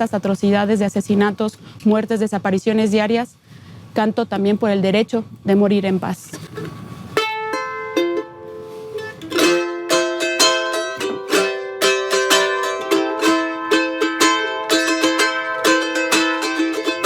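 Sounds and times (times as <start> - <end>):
charango strummed: 6.5 - 17.0.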